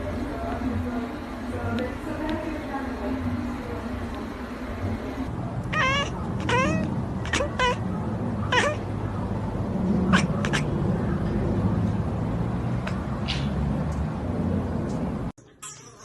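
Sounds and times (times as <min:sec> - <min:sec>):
pet animal high-pitched cries: 0:05.7 - 0:07.8, 0:08.5 - 0:08.9.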